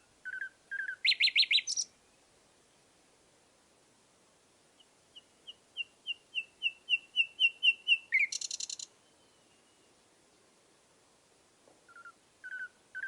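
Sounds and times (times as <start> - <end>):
bird singing: 0.0 - 2.2, 4.8 - 10.0, 11.9 - 13.0.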